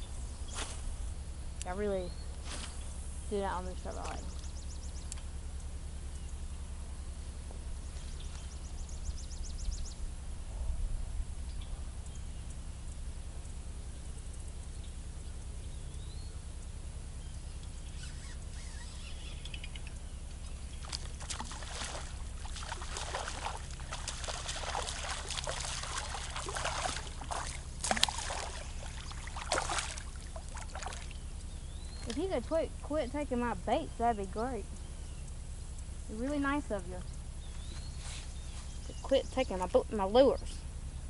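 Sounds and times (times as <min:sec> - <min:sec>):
steady low rumble: 0:00.0 - 0:41.0
water sloshing and splashing: 0:03.5 - 0:04.5, 0:20.4 - 0:31.3.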